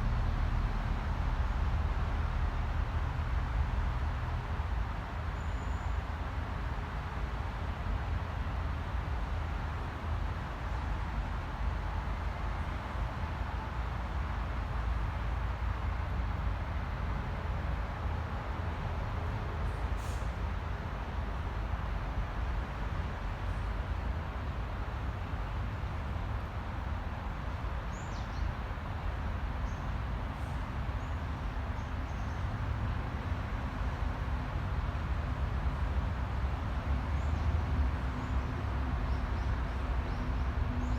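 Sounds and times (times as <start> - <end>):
distant city traffic rumble: 0.0 - 40.9
faint bird chirps: 5.4 - 6.0.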